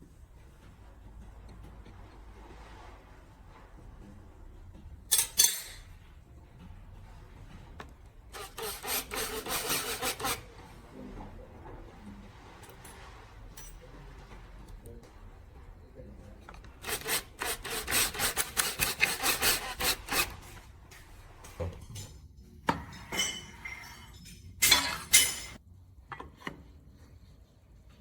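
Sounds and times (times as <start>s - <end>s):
hand tool scraping wood: 8.2s - 10.9s, 16.5s - 20.7s
knocks and clinks: 21.7s - 25.6s.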